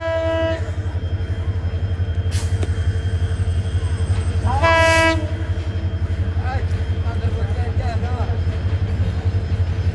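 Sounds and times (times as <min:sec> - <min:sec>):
train horn blast: 0:00.0 - 0:00.7, 0:04.5 - 0:05.5
train rumbling: 0:00.0 - 0:09.9.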